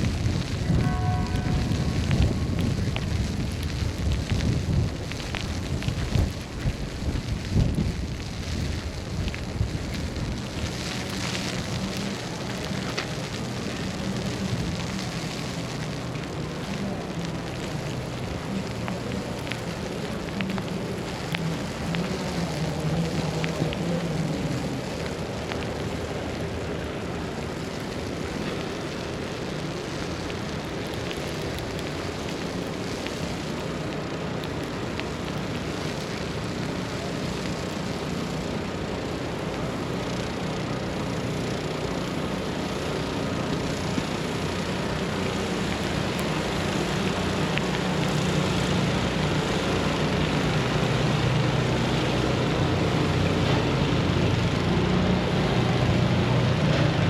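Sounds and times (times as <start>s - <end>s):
constant hiss: 0.0s - 57.0s
distant traffic rumble: 0.0s - 57.0s.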